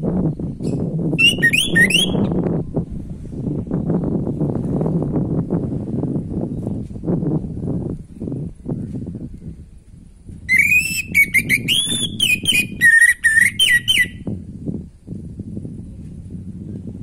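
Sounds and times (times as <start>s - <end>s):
thrush singing whistled notes: 0.6s - 2.4s, 10.5s - 14.3s.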